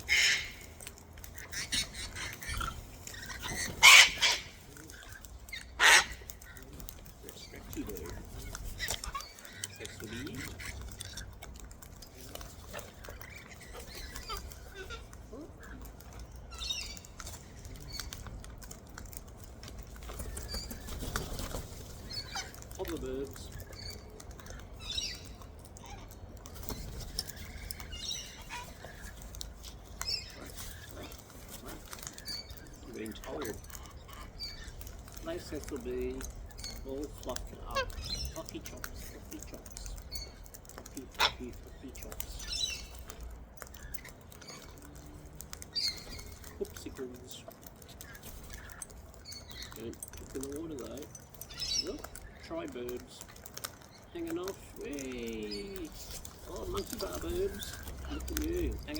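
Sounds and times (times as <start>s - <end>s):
cockatoo screeches: 0.0s - 19.3s, 19.9s - 45.0s
soft bird chatter and clicks: 0.0s - 58.9s.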